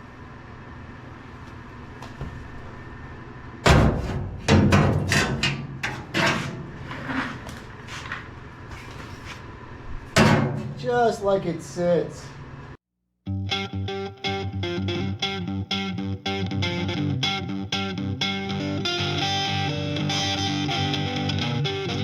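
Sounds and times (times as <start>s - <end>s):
loud knocks and clunks: 3.6s - 6.8s, 10.1s - 10.8s.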